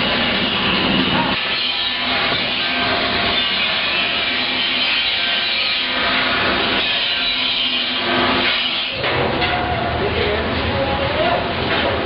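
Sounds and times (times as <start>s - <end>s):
tool rasping against metal: 1.1s - 9.0s.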